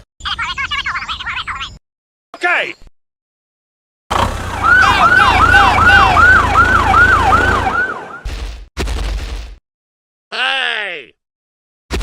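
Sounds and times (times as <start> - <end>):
low engine rumble: 4.1 - 8.0
siren yelping: 4.5 - 8.3.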